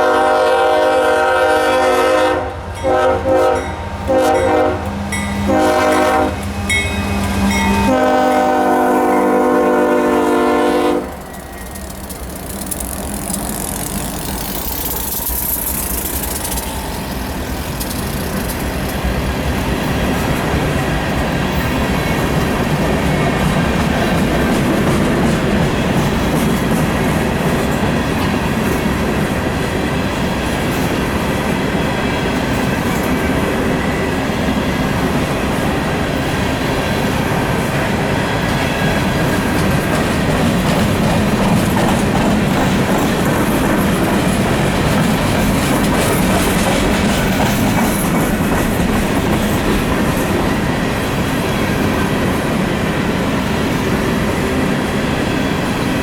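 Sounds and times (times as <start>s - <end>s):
locomotive horn: 0.0s - 11.4s
train wheels rumbling on rails: 0.0s - 56.0s
faint wheel squeal: 11.3s - 18.7s.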